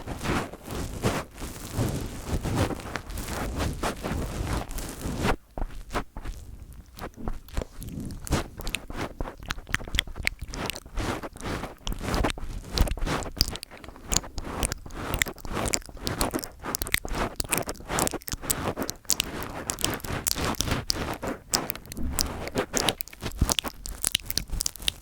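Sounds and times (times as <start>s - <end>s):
fingers tapping and scratching microphone: 0.3s - 25.0s.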